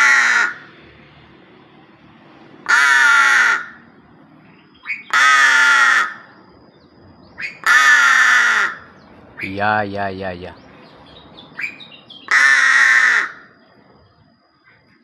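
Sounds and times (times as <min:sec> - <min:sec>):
crow cawing: 0:00.0 - 0:00.7, 0:02.6 - 0:03.9, 0:04.8 - 0:06.4, 0:07.4 - 0:09.5, 0:11.6 - 0:13.6.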